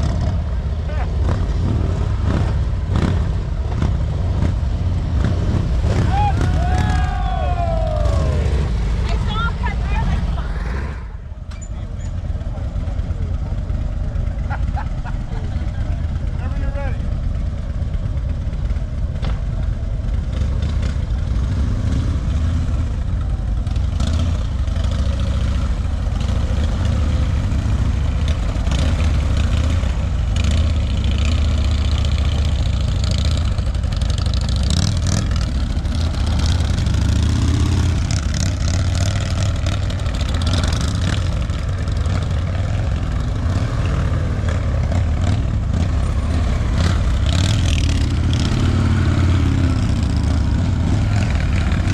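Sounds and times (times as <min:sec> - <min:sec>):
motorcycle engine revving: 0:00.0 - 0:11.4, 0:12.1 - 0:51.9.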